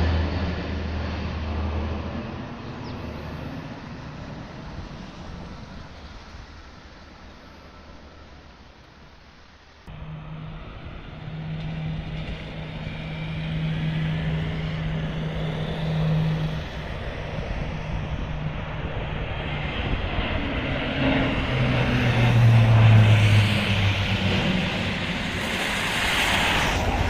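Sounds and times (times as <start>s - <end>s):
turboprop aircraft flying past: 0.0s - 8.7s, 9.9s - 27.0s.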